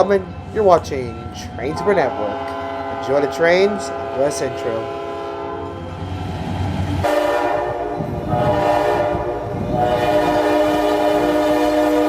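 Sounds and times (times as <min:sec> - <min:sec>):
passing train rumble: 0:00.0 - 0:12.0
train horn chord: 0:01.6 - 0:05.9, 0:07.0 - 0:12.0.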